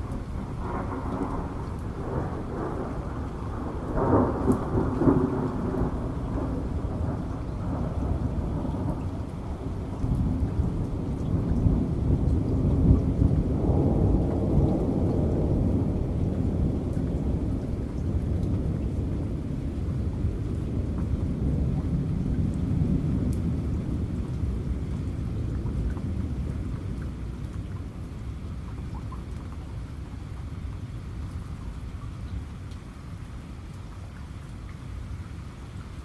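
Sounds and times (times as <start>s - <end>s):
rolling thunder: 0.0s - 27.7s
heavy rain: 0.0s - 36.0s.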